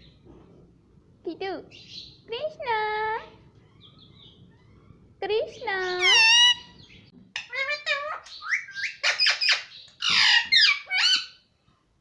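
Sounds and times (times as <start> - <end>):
parrot chattering and squawking: 5.8 - 11.5.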